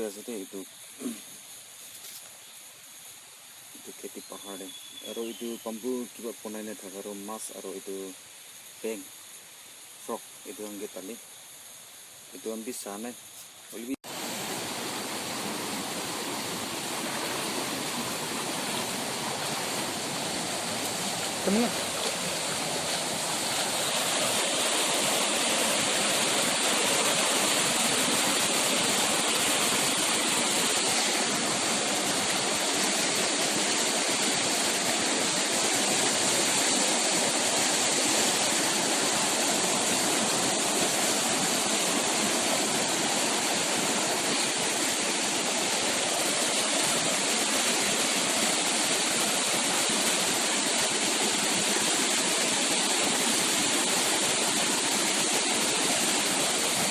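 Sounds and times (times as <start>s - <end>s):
stream rushing: 13.8s - 56.9s.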